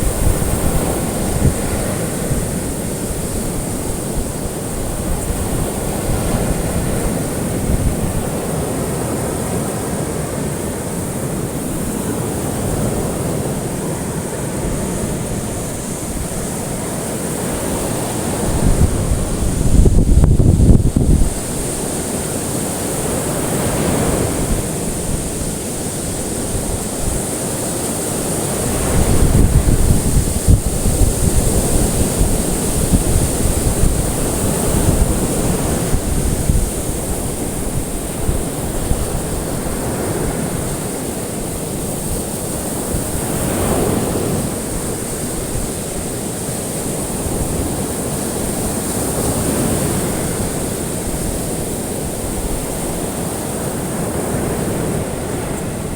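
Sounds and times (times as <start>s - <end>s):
ocean waves breaking: 0.0s - 55.9s.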